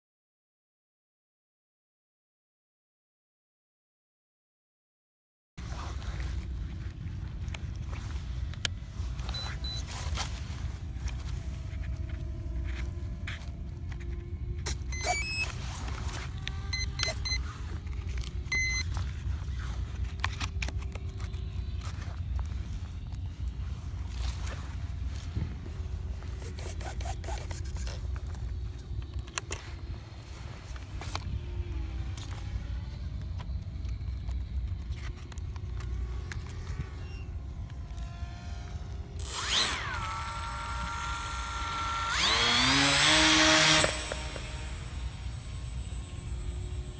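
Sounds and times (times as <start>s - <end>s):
electric motors whining: 7.6s - 19.9s, 20.6s - 46.9s
long beep: 14.9s - 15.5s, 16.7s - 17.4s, 18.5s - 18.9s, 39.2s - 46.9s
electronic beeping tones: 14.9s - 15.6s, 16.7s - 17.4s, 18.5s - 18.9s
clicks: 39.2s - 46.9s.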